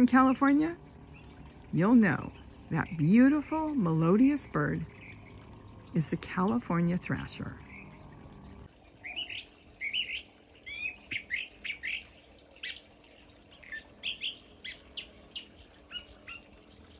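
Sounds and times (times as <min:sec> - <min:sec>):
bird singing melodious phrases: 0:00.0 - 0:08.0, 0:09.0 - 0:16.9.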